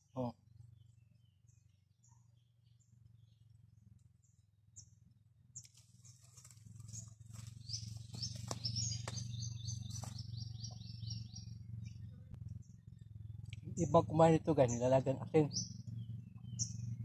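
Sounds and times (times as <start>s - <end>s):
sharp clicks of branches: 5.6s - 10.2s
songbird chirping and whistling: 7.6s - 12.0s.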